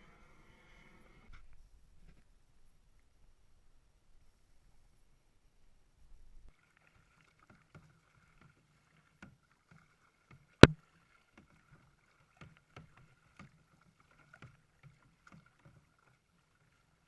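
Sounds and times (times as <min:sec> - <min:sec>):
paddle knocks and splashes: 0:07.2 - 0:16.5.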